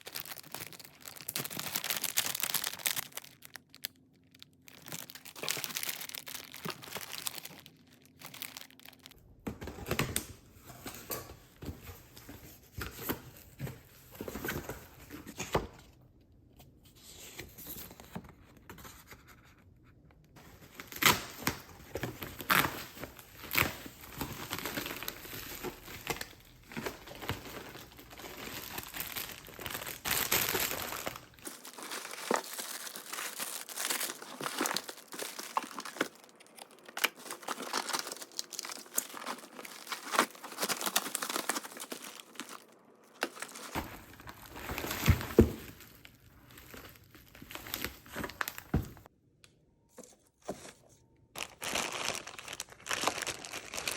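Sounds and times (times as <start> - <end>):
packaging crinkling and tearing: 0.0 - 9.2, 20.4 - 49.1, 51.4 - 53.9.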